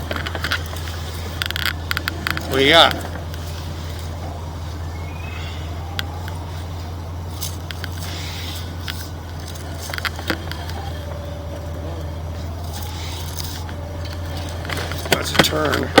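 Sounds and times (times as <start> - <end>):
faint thin whine: 0.0 - 16.0
low mechanical hum: 0.0 - 16.0
clicks: 5.6 - 16.0.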